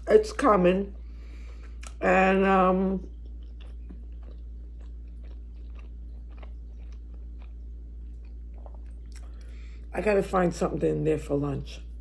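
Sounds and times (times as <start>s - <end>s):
steady low hum: 0.0s - 12.0s
person chewing food: 1.0s - 2.0s, 2.6s - 9.9s.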